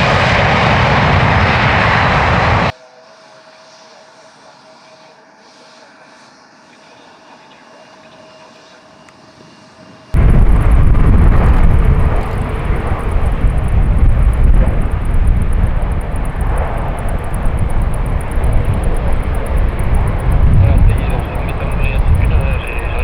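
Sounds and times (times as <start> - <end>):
jet engine roar: 0.0 - 2.7, 10.2 - 23.0.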